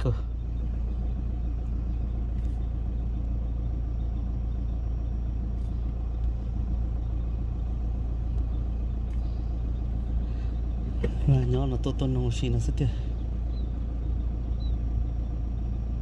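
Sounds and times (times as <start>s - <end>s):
steady low rumble: 0.0s - 16.0s
faint ticks: 8.3s - 9.4s.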